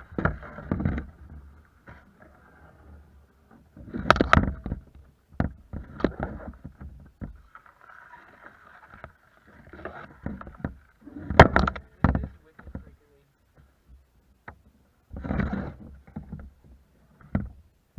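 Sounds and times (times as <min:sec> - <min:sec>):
knocks and splashes against kayak hull: 0:03.6 - 0:17.6.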